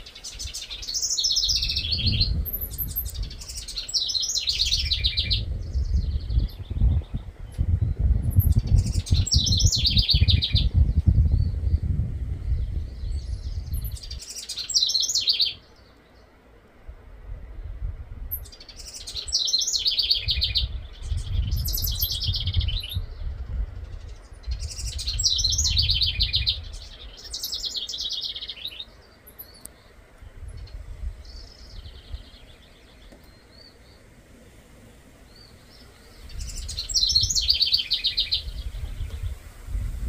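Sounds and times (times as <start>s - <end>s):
songbird singing high notes: 0.0s - 7.2s, 8.3s - 10.7s, 35.3s - 39.3s.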